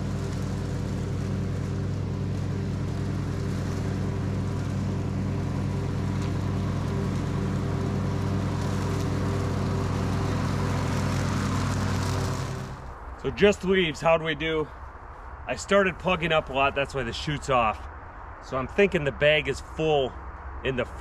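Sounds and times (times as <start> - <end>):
lawn tractor engine running: 0.0 - 13.6.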